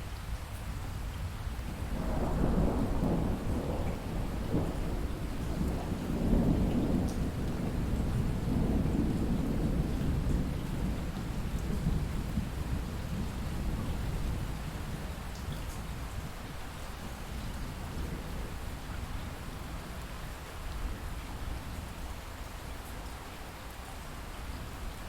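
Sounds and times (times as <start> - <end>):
light rain falling: 0.0 - 25.0
distant thunder rumbling: 2.0 - 15.1.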